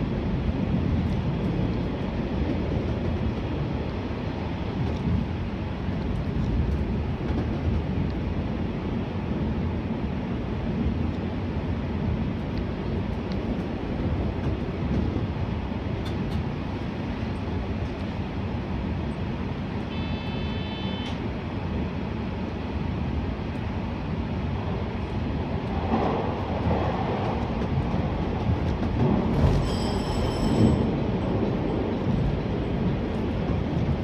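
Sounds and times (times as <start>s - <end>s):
train wheels rumbling on rail: 0.0s - 34.0s
high-pitched wheel squeals: 29.6s - 30.8s.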